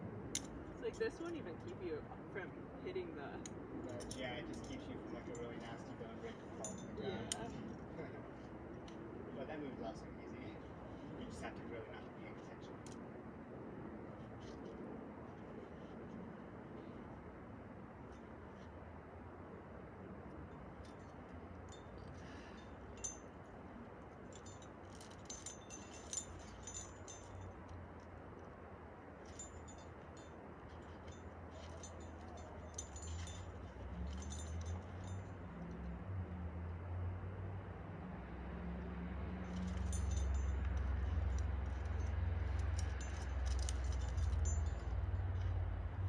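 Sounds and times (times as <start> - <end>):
metal climbing gear clinking: 0.3 - 1.7, 3.4 - 9.2, 14.1 - 17.3, 20.0 - 36.1, 38.8 - 46.0.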